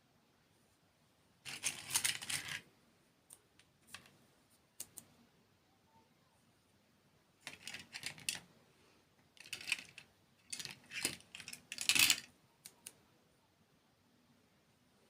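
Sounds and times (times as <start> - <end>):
small clicks: 12.6 - 13.0.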